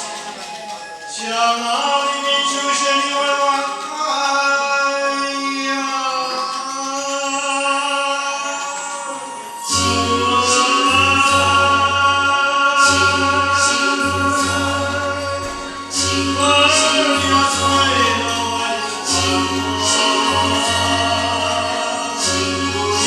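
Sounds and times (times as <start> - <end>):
person singing a long note: 7.6 - 23.0
backing music with bass: 9.7 - 23.0.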